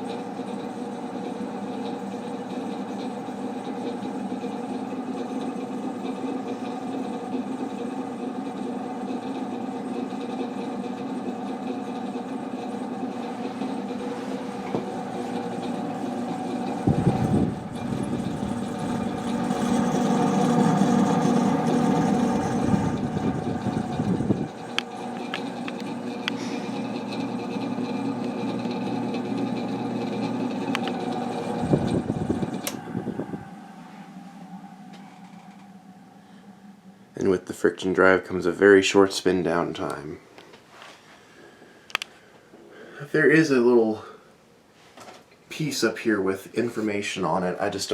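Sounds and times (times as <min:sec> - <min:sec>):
ceiling fan droning: 0:00.0 - 0:47.9
low rumble: 0:31.4 - 0:37.5.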